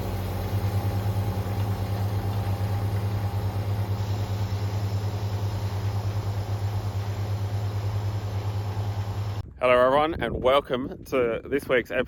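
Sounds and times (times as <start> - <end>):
large engine droning: 0.0 - 9.4.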